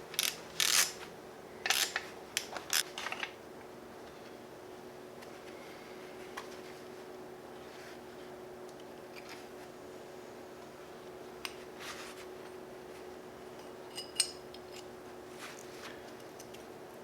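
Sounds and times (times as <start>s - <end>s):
light metallic clinks: 13.6s - 14.9s.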